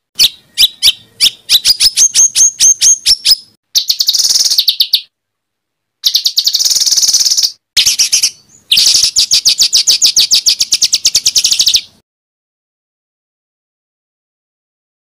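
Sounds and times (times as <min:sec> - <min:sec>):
songbird rapid harsh notes: 0:00.2 - 0:05.1, 0:06.0 - 0:12.0.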